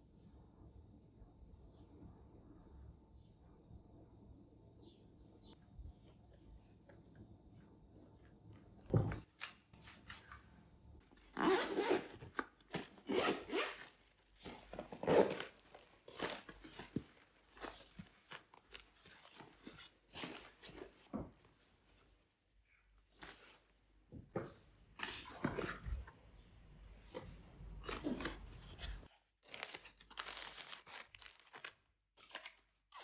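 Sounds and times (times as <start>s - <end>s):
objects rustling and scraping: 8.9s - 33.0s.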